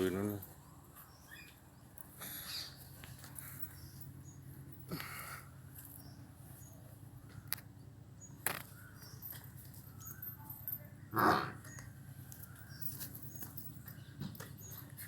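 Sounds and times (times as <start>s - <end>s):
rough animal call: 11.1s - 11.8s.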